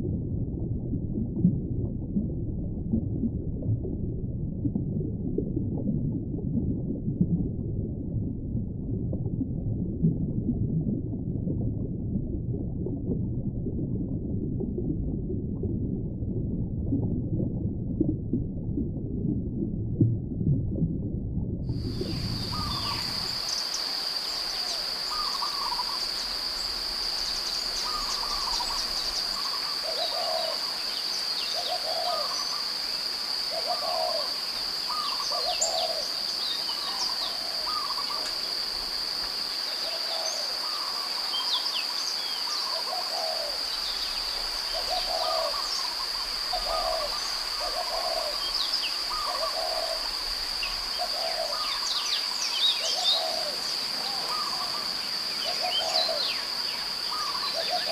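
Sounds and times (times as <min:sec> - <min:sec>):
low bird calls: 0:22.0 - 0:32.7, 0:33.5 - 0:38.4, 0:39.8 - 0:57.9.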